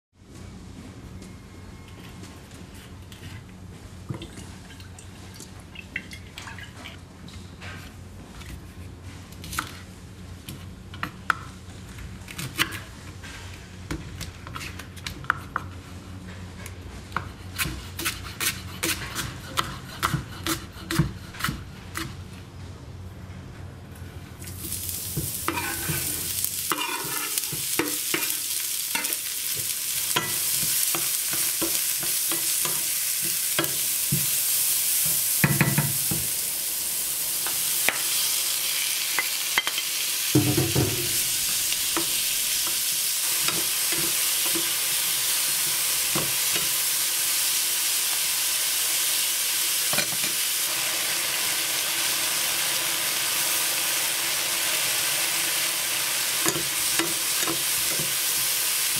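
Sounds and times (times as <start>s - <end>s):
food sizzling in frying pan: 24.4s - 58.9s
utensil scraping and knocking pan: 25.5s - 28.4s.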